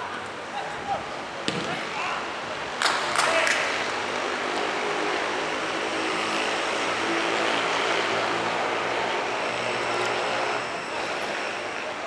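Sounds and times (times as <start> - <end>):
engine drone: 3.8 - 12.0.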